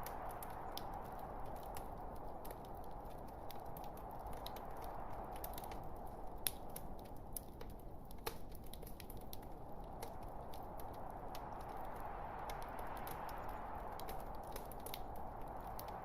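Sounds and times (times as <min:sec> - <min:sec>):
log fire crackling: 0:00.0 - 0:16.0.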